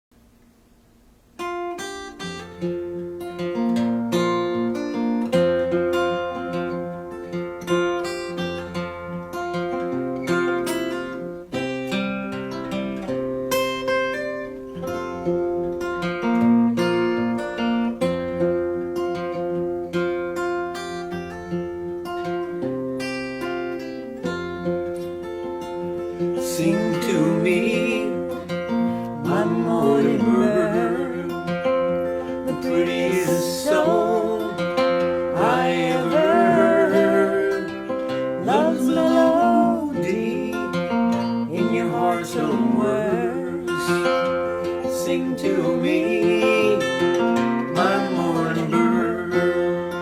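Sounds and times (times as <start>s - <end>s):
acoustic guitar strumming: 0.3s - 50.0s.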